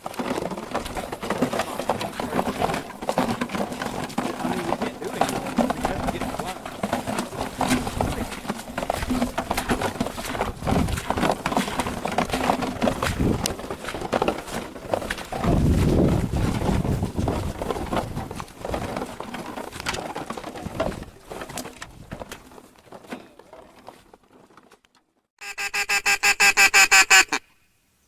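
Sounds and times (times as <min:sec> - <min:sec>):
rustling and knocking: 0:00.0 - 0:25.2
duck quacks: 0:25.4 - 0:27.5.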